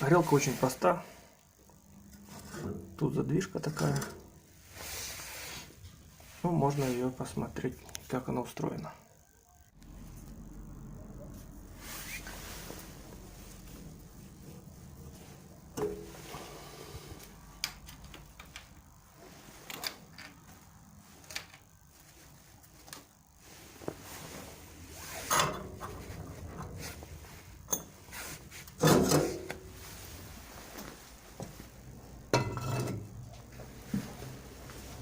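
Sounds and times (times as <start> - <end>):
metal scraping clanks: 25.1 - 29.6, 32.3 - 33.2.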